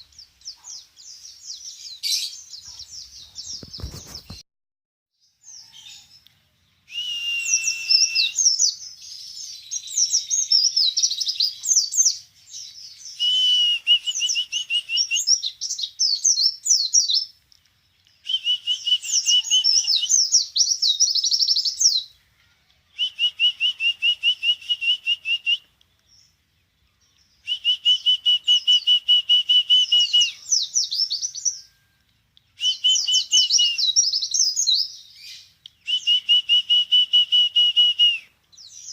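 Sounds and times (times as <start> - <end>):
songbird trilling and warbling: 14.1 - 22.2, 29.8 - 31.8.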